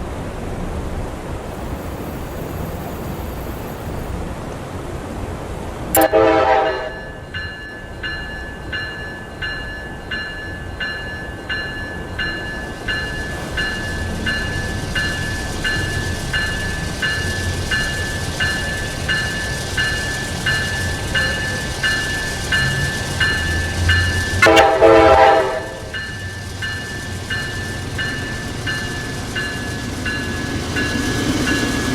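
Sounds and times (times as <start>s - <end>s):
train rumble: 0.0s - 31.9s
train horn blast: 6.0s - 7.2s, 24.4s - 26.0s
bell ringing: 6.0s - 25.2s.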